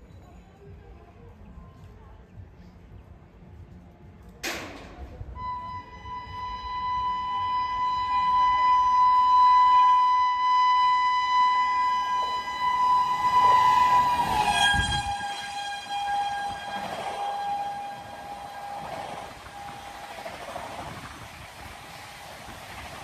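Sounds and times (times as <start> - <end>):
train passing rush: 5.0 - 23.0
train horn long blast: 5.4 - 23.0.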